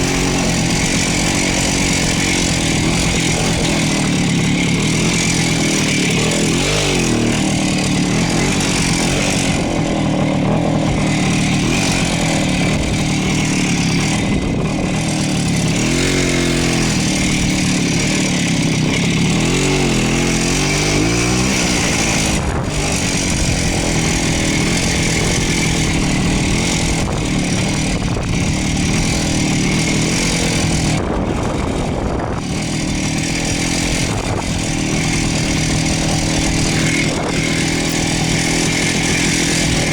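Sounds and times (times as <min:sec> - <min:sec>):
two-stroke motorcycle engine running: 0:00.0 - 0:39.9.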